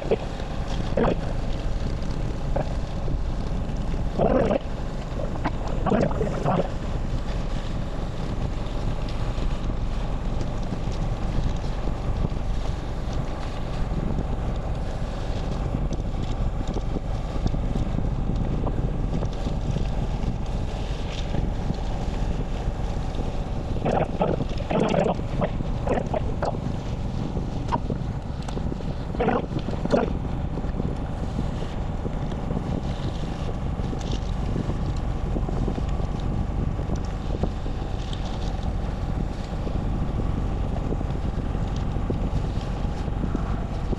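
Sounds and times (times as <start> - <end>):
wind rumble on microphone: 0.0 - 43.9
short voices or calls: 5.2 - 6.7, 23.8 - 26.6, 29.2 - 30.1.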